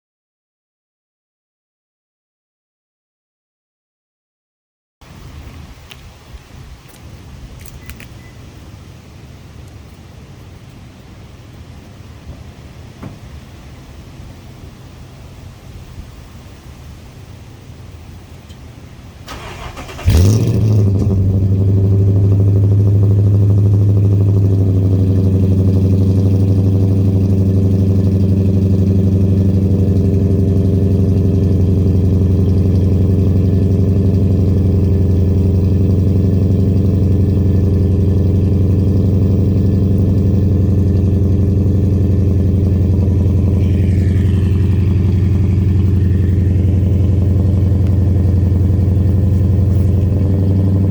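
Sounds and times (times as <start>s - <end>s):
engine idling through exhaust: 17.4s - 50.9s
starter motor cranking: 19.3s - 20.4s.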